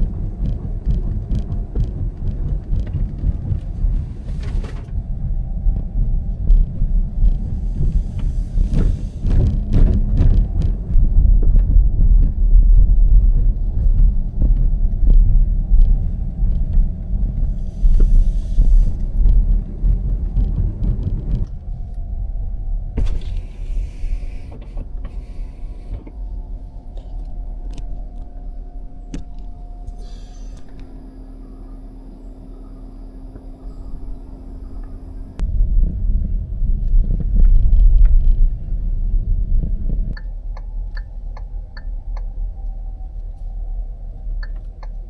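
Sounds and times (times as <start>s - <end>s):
knocks and rattles: 0.0s - 5.0s, 6.5s - 17.0s
road and tyre rumble: 0.0s - 45.0s.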